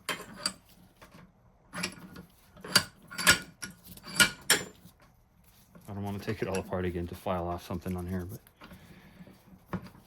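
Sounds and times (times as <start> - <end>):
metal vise clicking and knocking: 0.0 - 4.8.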